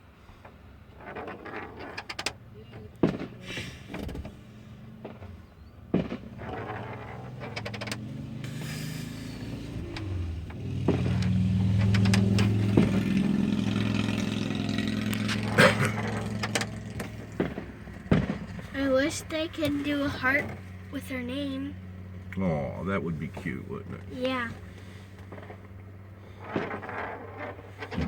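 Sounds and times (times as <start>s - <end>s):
car engine running: 2.1s - 28.0s
sharp bangs: 5.0s - 20.6s.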